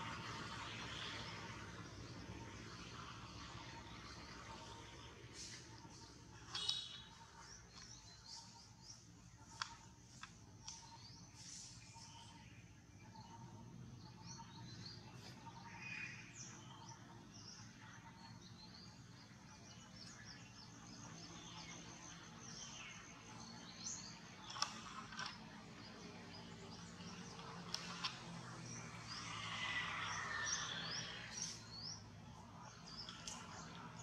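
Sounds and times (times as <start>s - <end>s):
faint birdsong chirps: 0.0s - 34.0s
sharp clicks: 24.4s - 26.1s, 26.7s - 28.9s.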